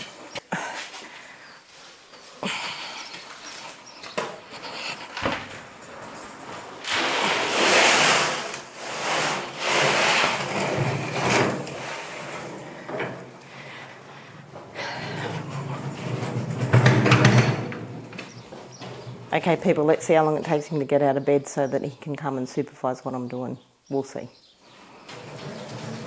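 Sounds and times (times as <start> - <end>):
gravel pouring: 5.5 - 13.4, 25.1 - 26.0
shovel scraping gravel: 5.8 - 12.7.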